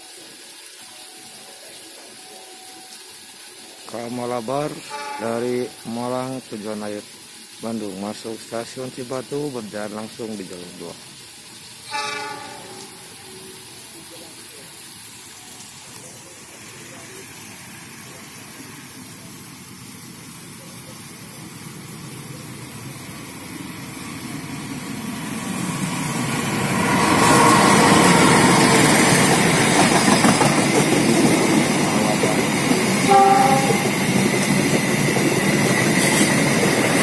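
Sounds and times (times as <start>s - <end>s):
passenger train rumbling past: 8.1s - 37.0s.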